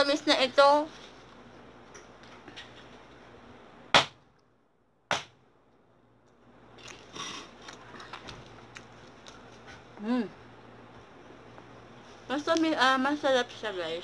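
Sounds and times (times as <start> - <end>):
person chewing flatbread: 6.7 - 10.0.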